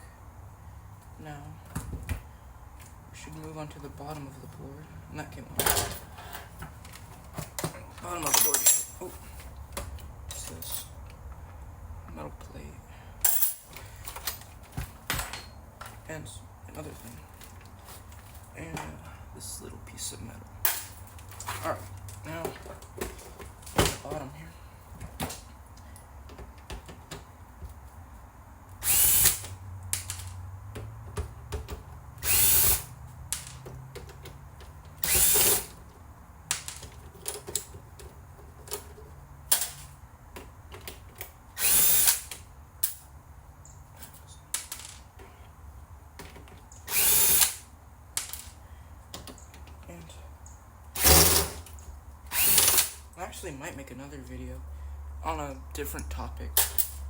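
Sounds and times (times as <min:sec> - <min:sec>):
parts clicking and rattling: 0:05.5 - 0:11.6, 0:13.2 - 0:16.1, 0:20.6 - 0:28.0, 0:28.6 - 0:53.2, 0:56.6 - 0:57.0
electric screwdriver whirring: 0:28.8 - 0:29.6, 0:32.2 - 0:33.0, 0:35.0 - 0:35.8, 0:41.6 - 0:42.3, 0:46.9 - 0:47.6, 0:51.0 - 0:51.6, 0:52.3 - 0:53.0.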